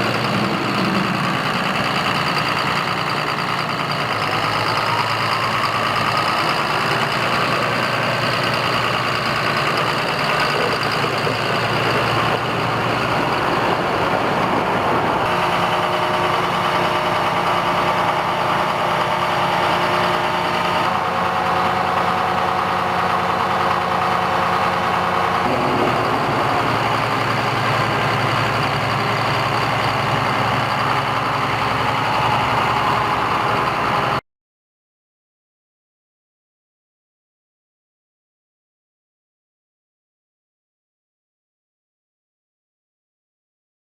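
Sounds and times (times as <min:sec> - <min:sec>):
tractor diesel engine running: 0:00.0 - 0:34.2.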